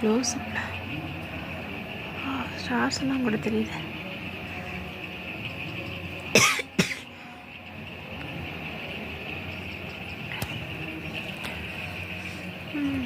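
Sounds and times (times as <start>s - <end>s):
high-pitched drone: 0.0s - 13.0s
person coughing: 6.4s - 7.1s.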